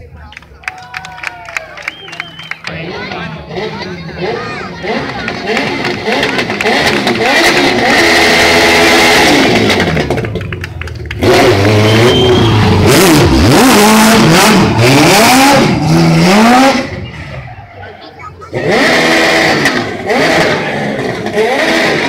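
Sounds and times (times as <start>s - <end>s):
car engine revving hard: 2.7s - 10.4s, 11.1s - 17.6s, 18.5s - 22.0s.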